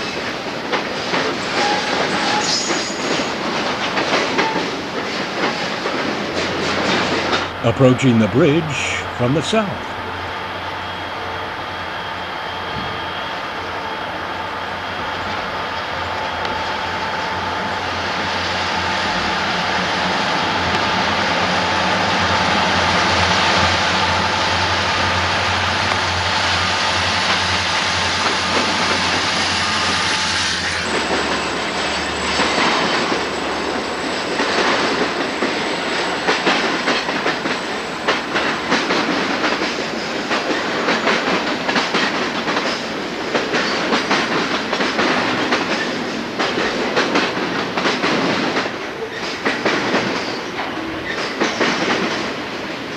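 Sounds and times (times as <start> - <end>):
train wheels clattering over rail joints: 0.0 - 7.5, 34.3 - 52.4
diesel locomotive engine hum: 6.2 - 40.0.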